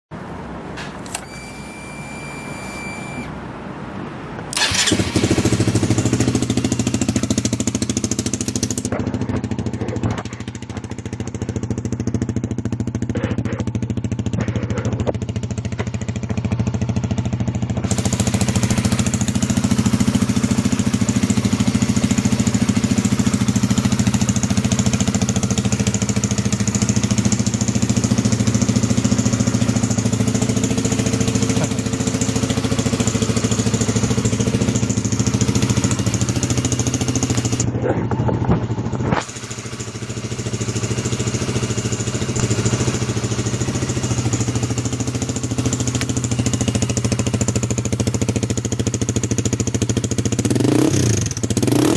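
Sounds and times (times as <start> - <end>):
electric starter cranking: 1.0 - 3.3, 4.5 - 5.7
motorcycle engine idling: 4.5 - 51.9.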